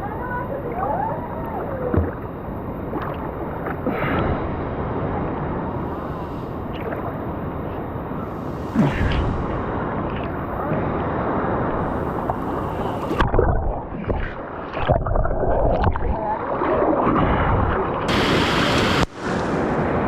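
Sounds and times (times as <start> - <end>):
water splashes: 0.2 - 4.3, 5.7 - 10.8
rushing river water: 18.1 - 19.8.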